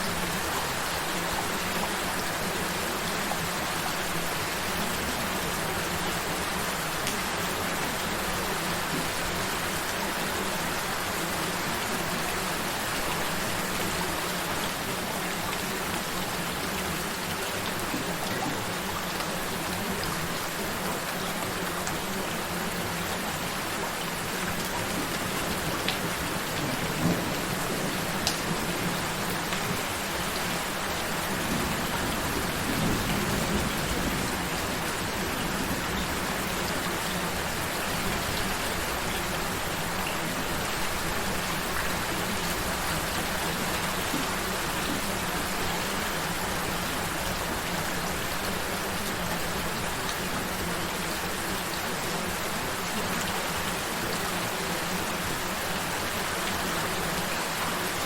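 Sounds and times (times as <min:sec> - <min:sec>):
gentle rain falling: 0:00.0 - 0:58.0.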